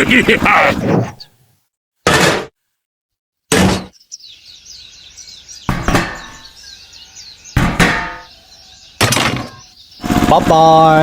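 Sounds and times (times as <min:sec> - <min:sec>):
birds chirping faintly: 0:03.8 - 0:11.0
sharp knocks: 0:05.7 - 0:06.5, 0:07.6 - 0:08.3.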